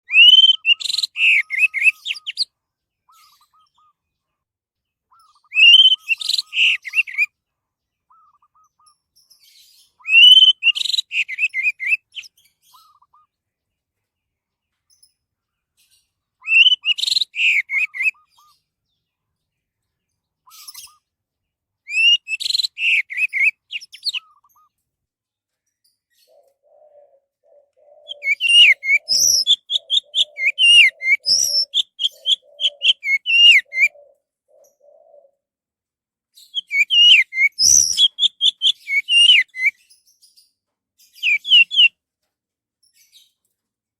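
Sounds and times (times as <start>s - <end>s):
low repeated bird call: 0.0s - 4.4s, 5.1s - 7.4s, 8.0s - 9.0s, 9.8s - 13.4s, 16.4s - 18.6s, 21.9s - 24.8s, 26.3s - 35.4s, 36.4s - 39.9s, 41.2s - 42.0s.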